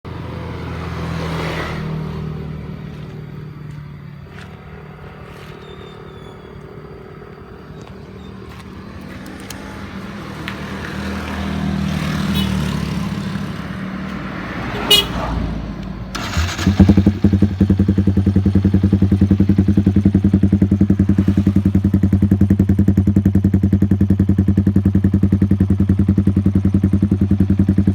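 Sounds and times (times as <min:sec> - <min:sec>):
motorcycle engine idling: 0:16.1 - 0:27.9.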